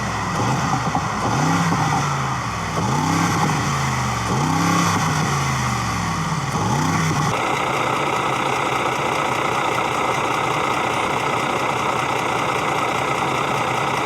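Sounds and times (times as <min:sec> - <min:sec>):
motor revving: 0:02.8 - 0:07.8.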